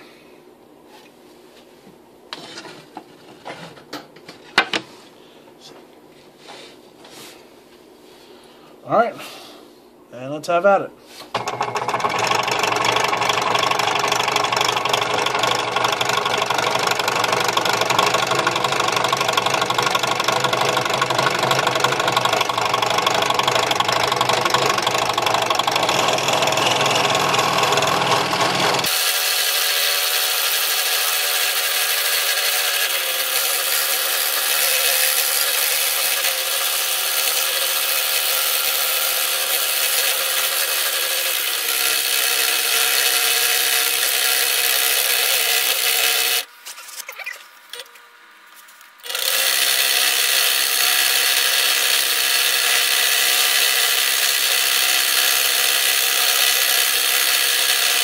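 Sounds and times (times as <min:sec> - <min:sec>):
scroll saw cutting wood: 0:11.3 - 0:47.8, 0:49.0 - 0:58.0.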